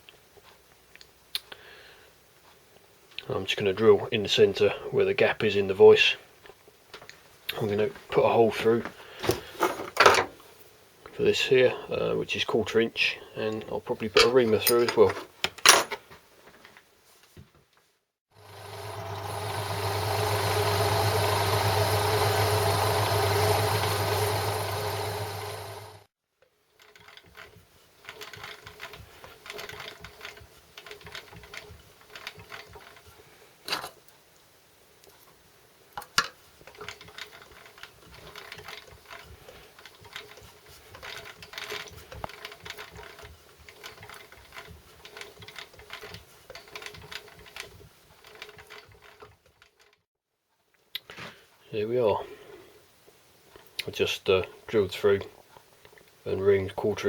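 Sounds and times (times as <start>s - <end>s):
milling machine motor hum: 18.4s - 26.1s.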